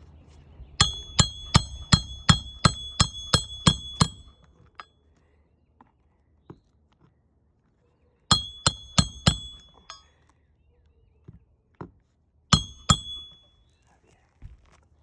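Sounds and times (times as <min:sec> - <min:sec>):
hatchet hammering a nail: 0:00.8 - 0:04.4, 0:08.3 - 0:10.0, 0:12.5 - 0:13.4.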